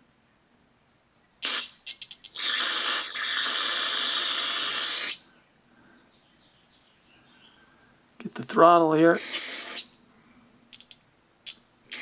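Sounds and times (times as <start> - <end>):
aerosol spray: 1.4 - 5.2, 9.2 - 10.0.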